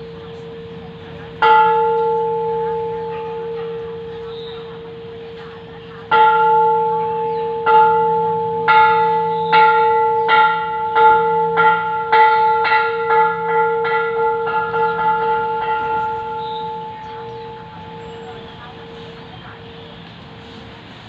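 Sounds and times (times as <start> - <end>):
temple bell ringing: 0.0 - 20.1.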